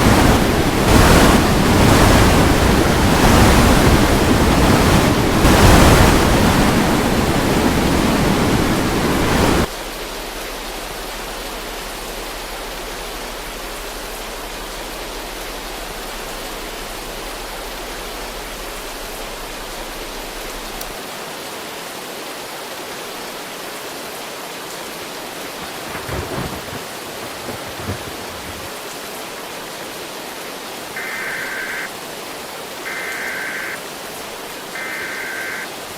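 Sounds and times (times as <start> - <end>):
storm wind and rain: 0.0 - 35.9
rushing hiss: 25.2 - 29.5
short beeps: 31.0 - 31.9, 32.9 - 33.8, 34.8 - 35.7.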